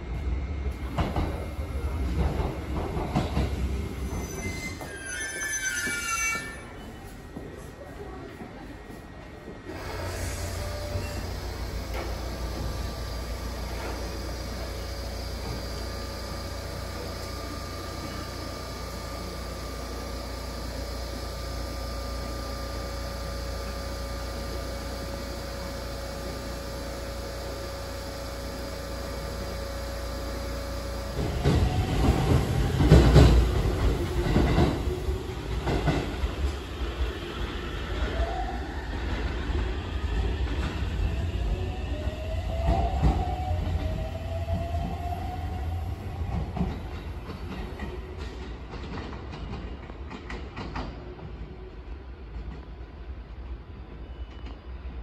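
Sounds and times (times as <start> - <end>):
electric train rumbling: 0.0 - 55.0.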